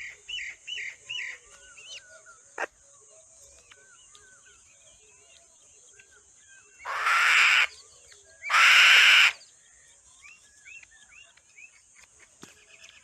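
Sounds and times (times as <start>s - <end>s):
small birds chirping: 0.0s - 13.0s
bird harsh rasping screeches: 6.9s - 7.7s, 8.5s - 9.4s.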